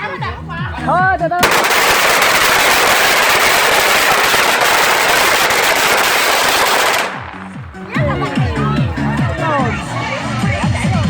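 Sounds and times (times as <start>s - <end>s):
fireworks crackling: 1.4s - 8.0s.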